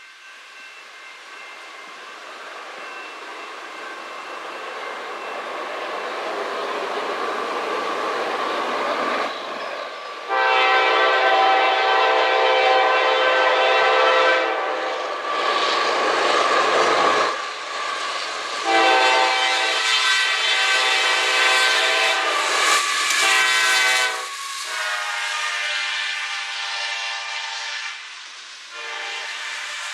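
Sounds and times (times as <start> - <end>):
rumble of passing train: 0.0 - 29.9
multi-chime locomotive air horn: 10.1 - 15.1, 18.6 - 28.1, 28.7 - 29.9.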